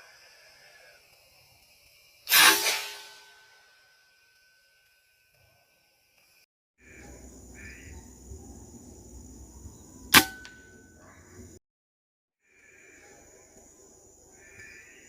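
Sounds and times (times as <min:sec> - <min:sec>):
air rifle shot: 0:02.3 - 0:03.4, 0:10.1 - 0:10.8
high-pitched insect drone: 0:06.8 - 0:10.1.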